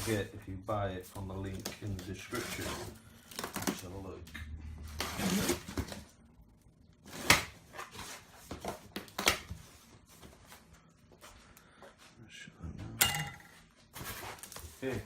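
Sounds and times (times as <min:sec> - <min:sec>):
cardboard packaging rustling: 0:00.0 - 0:04.1, 0:04.8 - 0:06.2, 0:13.9 - 0:15.0.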